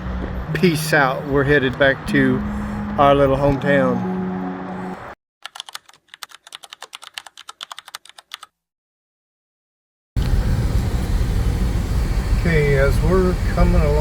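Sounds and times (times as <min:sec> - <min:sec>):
car road and engine noise: 0:00.0 - 0:05.2, 0:10.2 - 0:14.0
rapid irregular clicking: 0:05.4 - 0:08.5.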